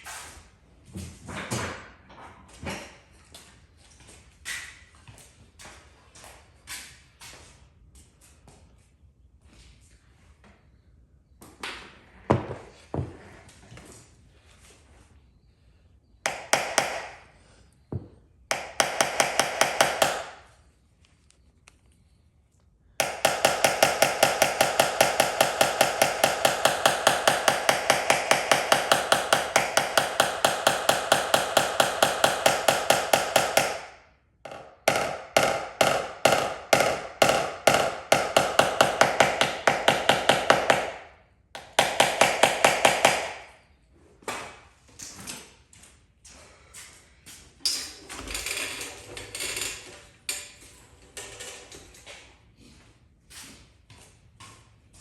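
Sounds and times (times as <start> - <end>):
hammer tapping on sheet metal: 16.3 - 17.2, 18.0 - 20.5, 23.0 - 43.5.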